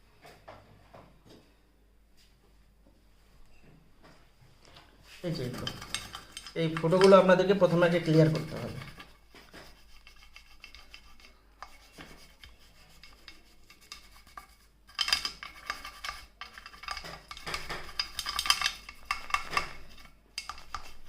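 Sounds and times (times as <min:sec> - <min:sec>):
scratchy scrubbing and scraping: 0:05.1 - 0:21.0.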